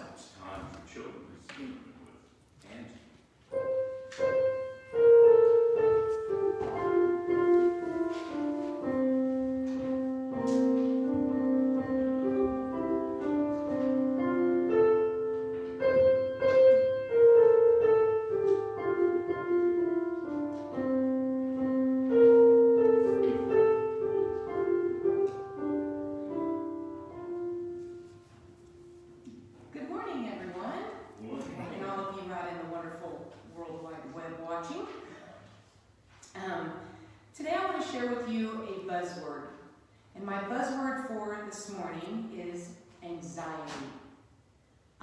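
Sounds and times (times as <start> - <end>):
solo piano melody: 3.5 - 29.8.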